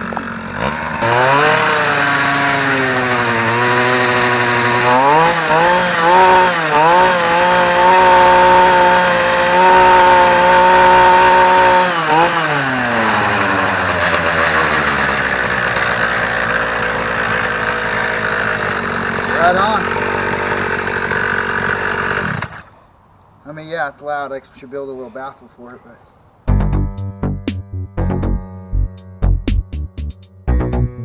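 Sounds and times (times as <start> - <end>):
small engine revving: 0.0 - 22.7.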